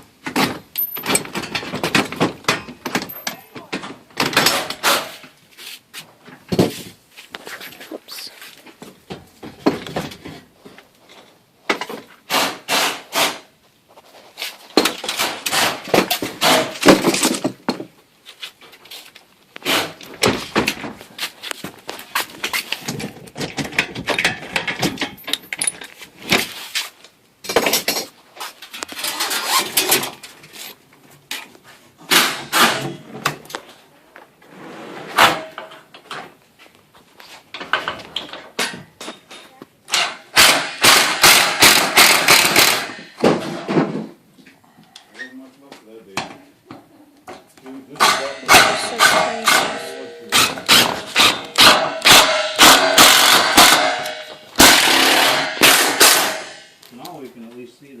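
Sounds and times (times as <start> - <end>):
knocking and clattering of parts: 0.0 - 5.4, 6.2 - 7.0, 8.7 - 13.5, 14.6 - 18.1, 19.6 - 26.6, 27.4 - 33.8, 35.2 - 36.4, 37.3 - 44.6, 46.1 - 57.0
scraping and sliding of parts: 18.3 - 33.8.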